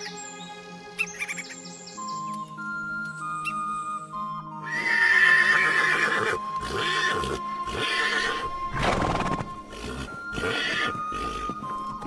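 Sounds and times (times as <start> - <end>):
background music: 0.0 - 12.0
horse whinnying: 4.6 - 11.5.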